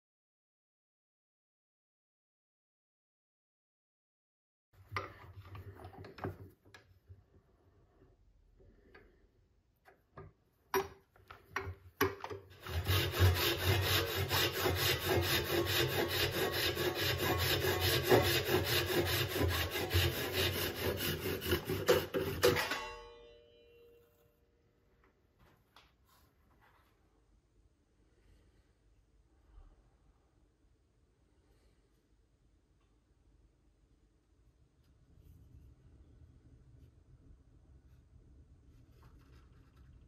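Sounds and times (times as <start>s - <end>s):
rubbing on spinning wood: 12.6s - 22.4s.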